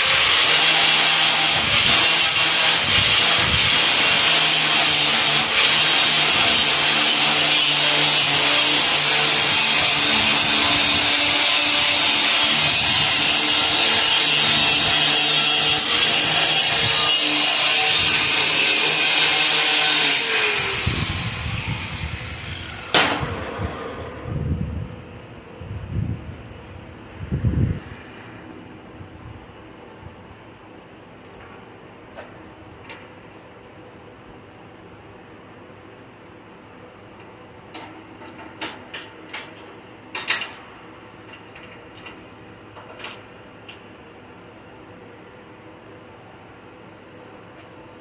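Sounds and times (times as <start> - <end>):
power grinder on metal: 0.0 - 23.8.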